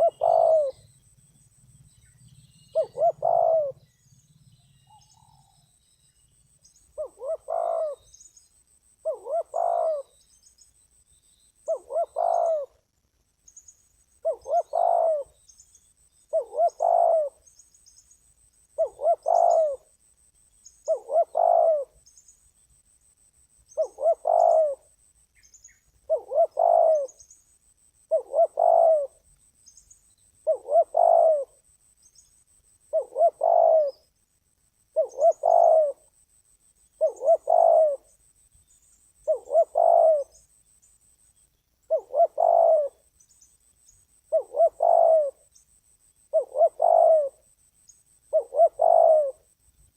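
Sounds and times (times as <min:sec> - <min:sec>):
dove cooing: 0:00.0 - 0:01.0, 0:02.3 - 0:04.1, 0:04.8 - 0:05.7, 0:06.7 - 0:08.1, 0:09.0 - 0:10.2, 0:11.6 - 0:12.8, 0:14.2 - 0:15.4, 0:16.3 - 0:17.4, 0:18.8 - 0:19.9, 0:20.8 - 0:22.0, 0:23.7 - 0:24.9, 0:26.0 - 0:27.2, 0:28.0 - 0:29.2, 0:30.4 - 0:31.7, 0:32.8 - 0:34.1, 0:34.9 - 0:36.2, 0:36.9 - 0:38.2, 0:39.2 - 0:40.5, 0:41.9 - 0:43.1, 0:44.3 - 0:45.5, 0:46.3 - 0:47.4, 0:48.3 - 0:49.5
faint high chirps: 0:00.0 - 0:49.9.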